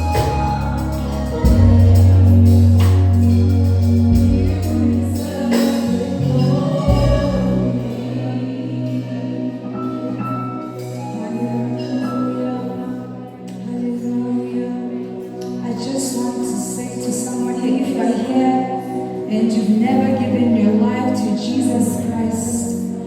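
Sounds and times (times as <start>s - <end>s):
percussion: 0.0s - 7.8s
deep bass notes: 0.0s - 8.6s
gospel singing over a band: 0.0s - 23.0s.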